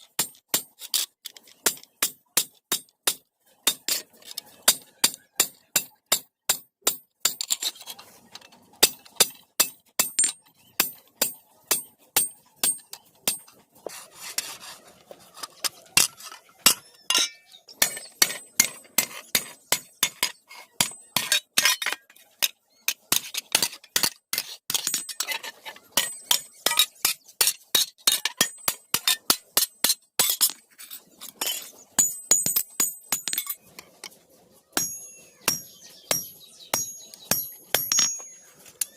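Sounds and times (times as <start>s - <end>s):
hammer ringing on anvil: 34.8s - 38.4s.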